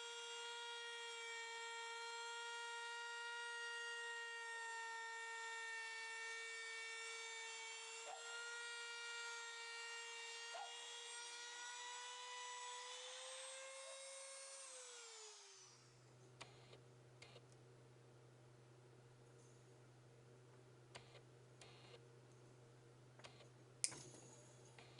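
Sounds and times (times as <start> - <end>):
power tool motor whine: 0.0 - 17.4.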